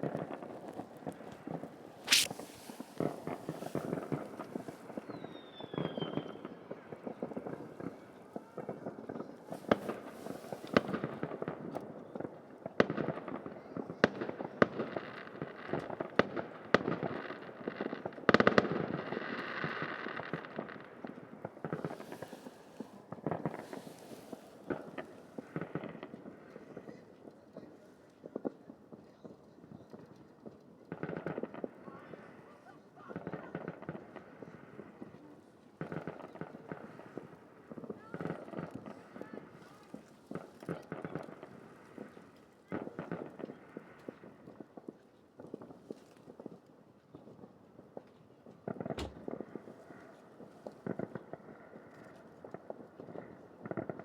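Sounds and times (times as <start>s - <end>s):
fireworks crackling: 0.0s - 11.7s, 19.2s - 26.7s, 49.0s - 49.8s
fireworks bangs and pops: 0.0s - 32.4s, 33.1s - 54.0s
fireworks falling whistle: 2.0s - 6.6s.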